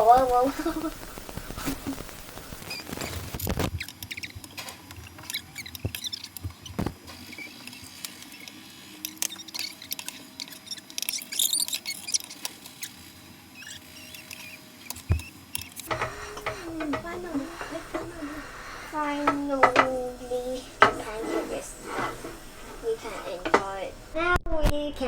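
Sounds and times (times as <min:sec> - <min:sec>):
spatula scraping frying pan: 0:15.9 - 0:24.2.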